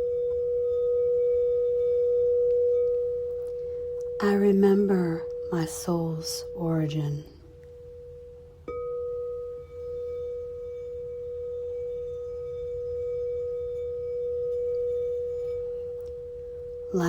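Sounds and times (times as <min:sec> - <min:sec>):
bowl struck ringing: 0:00.0 - 0:17.0
singing bowl ringing: 0:00.0 - 0:17.0.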